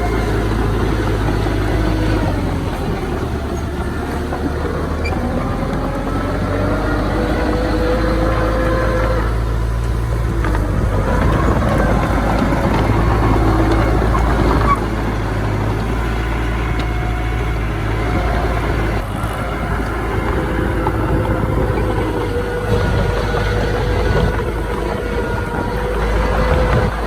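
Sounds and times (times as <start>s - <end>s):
heavy diesel engines rumbling: 0.0s - 27.0s
high-pitched machinery whines: 0.0s - 27.0s.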